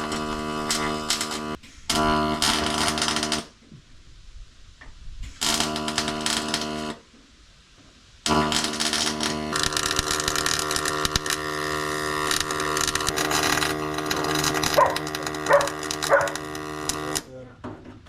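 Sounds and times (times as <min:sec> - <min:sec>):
arc welder humming and crackling: 0:00.0 - 0:03.6, 0:05.3 - 0:07.0, 0:08.3 - 0:17.3
dog barking: 0:14.7 - 0:16.4.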